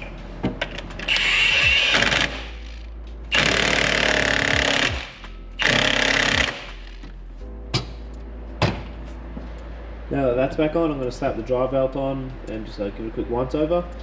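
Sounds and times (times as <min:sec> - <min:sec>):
impact wrench hammering: 0:03.3 - 0:07.0.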